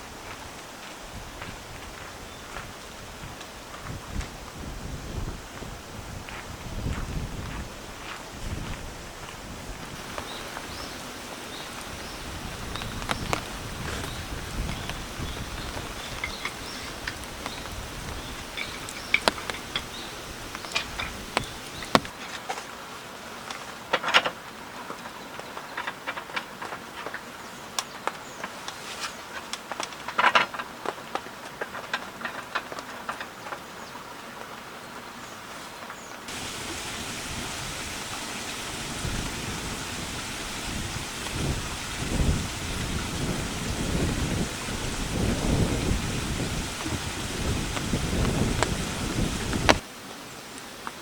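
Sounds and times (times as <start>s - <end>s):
steady rain hiss: 0.0s - 24.9s, 33.8s - 51.0s
wind gusts rumbling: 3.0s - 22.1s, 36.3s - 49.8s
raindrops ticking: 10.0s - 22.1s, 36.3s - 49.8s.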